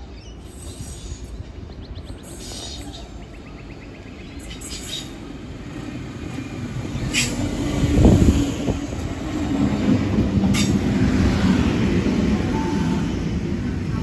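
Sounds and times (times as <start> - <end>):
train wheels rumbling on rails: 4.2 - 14.0.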